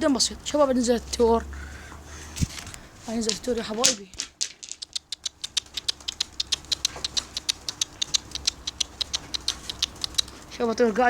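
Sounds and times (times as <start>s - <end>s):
light dry clicks: 4.7s - 10.6s.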